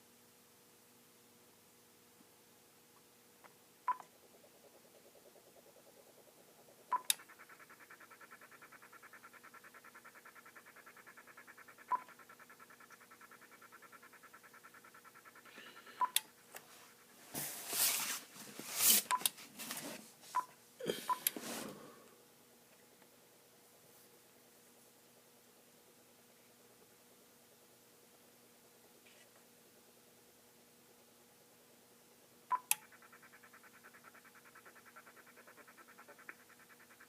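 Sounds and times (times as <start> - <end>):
rapid pulsing radio noise: 4.1 - 16.4, 32.8 - 37.0.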